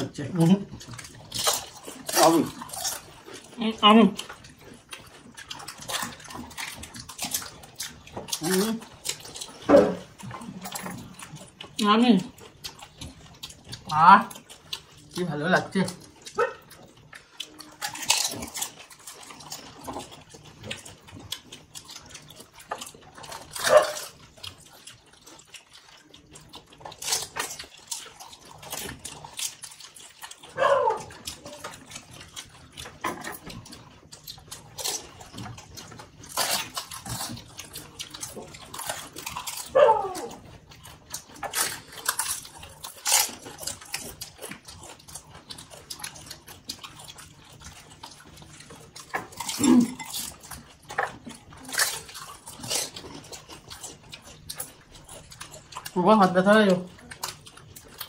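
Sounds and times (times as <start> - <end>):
slurping water: 0.0 - 58.0
crisp shells crunching: 17.4 - 20.8.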